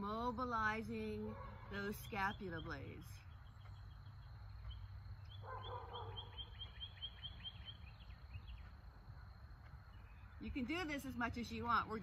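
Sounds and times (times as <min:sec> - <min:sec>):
songbird chirping: 0:00.0 - 0:12.0
lower pitched bird call: 0:04.7 - 0:08.7.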